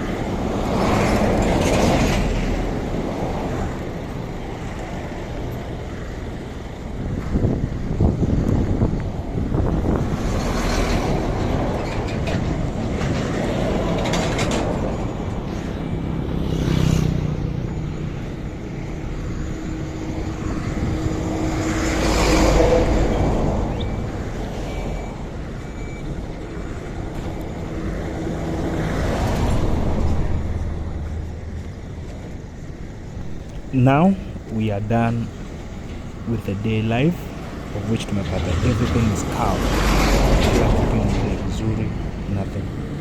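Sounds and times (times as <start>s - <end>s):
road traffic rumble: 0.0s - 43.0s.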